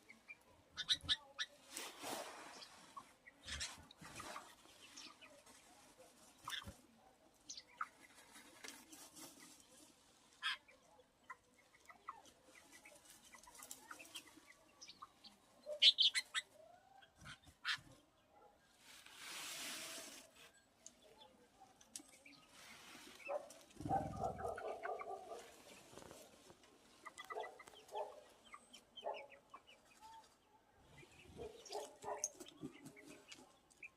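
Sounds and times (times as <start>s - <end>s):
hen clucking: 0.0s - 1.6s, 23.2s - 26.1s, 26.9s - 29.9s
bird calls and clicks: 20.8s - 30.4s, 31.2s - 33.9s.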